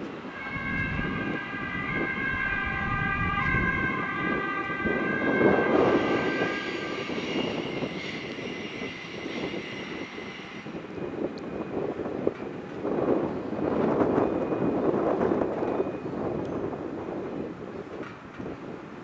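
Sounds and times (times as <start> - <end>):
train wheels rumbling: 0.2 - 11.2
high wheel squeal: 0.3 - 11.2.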